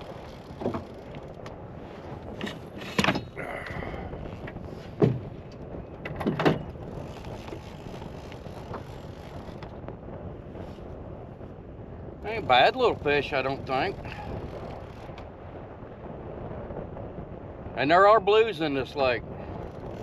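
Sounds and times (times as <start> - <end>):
knocks and clunks in boat: 0.0 - 10.8
wind hiss: 0.0 - 20.0.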